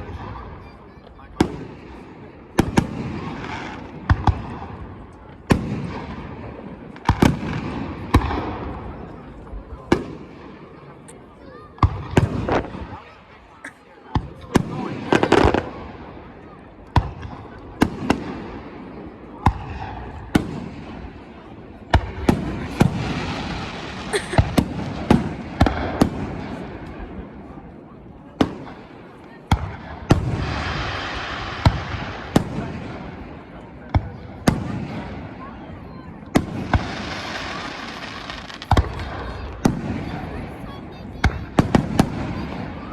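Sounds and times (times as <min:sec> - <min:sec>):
fireworks bursting: 0:01.4 - 0:10.8, 0:11.8 - 0:27.5, 0:28.4 - 0:35.4, 0:36.3 - 0:42.9
fireworks crackle: 0:17.2 - 0:27.3, 0:29.6 - 0:33.5, 0:36.3 - 0:42.9.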